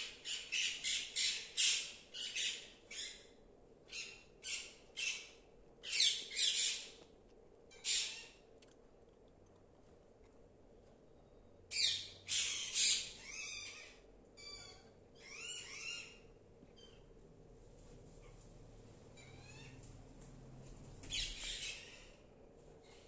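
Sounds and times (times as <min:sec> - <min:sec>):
parrots squawking: 0:03.9 - 0:06.9, 0:07.7 - 0:08.4, 0:11.7 - 0:16.2, 0:21.1 - 0:22.2.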